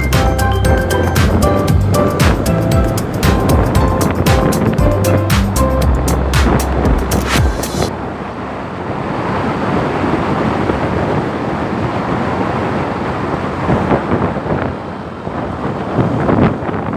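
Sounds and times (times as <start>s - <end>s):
music with sharp beat: 0.0s - 7.9s
wind rushing on microphone: 0.0s - 16.9s.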